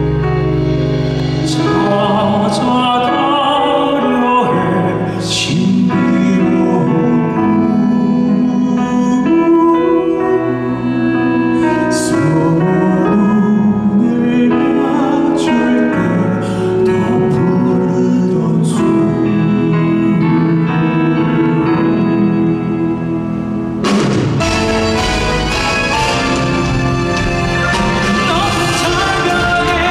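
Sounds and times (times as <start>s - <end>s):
instrumental accompaniment: 0.0s - 29.9s
voices singing in harmony: 27.6s - 29.9s.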